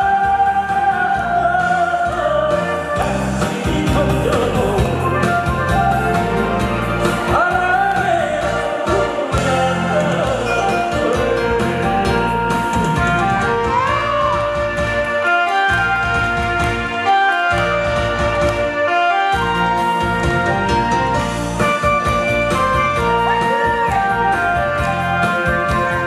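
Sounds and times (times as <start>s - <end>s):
person singing with vibrato: 0.0s - 16.0s
backing track music: 0.0s - 26.0s.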